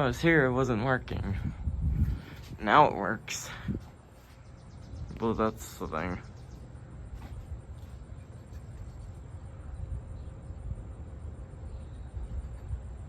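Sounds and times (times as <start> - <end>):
ceiling fan rumbling: 0.0 - 13.0
faint steady hum: 0.0 - 13.0
person talking: 2.6 - 3.8, 5.1 - 6.4.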